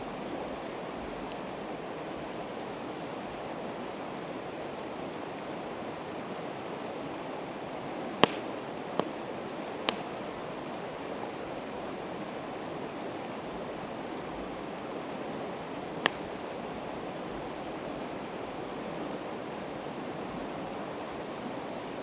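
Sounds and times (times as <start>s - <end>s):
campfire crackling: 1.0s - 20.3s
river rushing: 4.4s - 17.2s
fire popping: 7.0s - 16.6s
cricket chirping: 7.1s - 14.6s.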